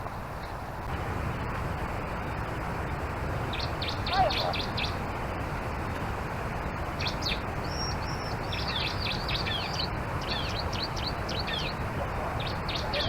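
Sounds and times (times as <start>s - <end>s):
background hiss: 0.0s - 13.0s
bird song chirps: 3.5s - 5.0s, 7.0s - 13.0s.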